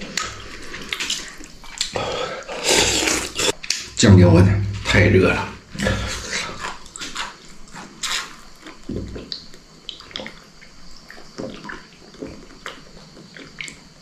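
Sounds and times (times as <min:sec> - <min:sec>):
person slurping noodles: 0:01.9 - 0:03.6.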